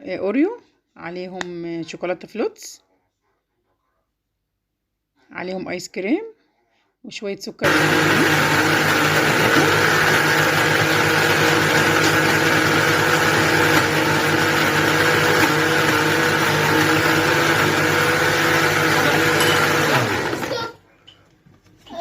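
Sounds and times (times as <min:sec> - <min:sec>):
electric blender running: 0:07.6 - 0:20.7.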